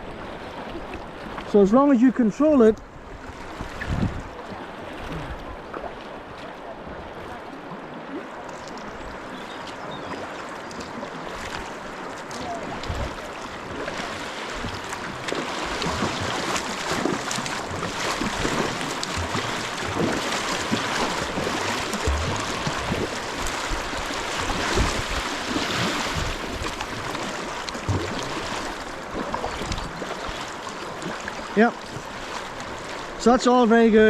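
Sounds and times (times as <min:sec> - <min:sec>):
river water rushing: 0:00.0 - 0:34.0
small knocks and splashes: 0:08.2 - 0:33.1.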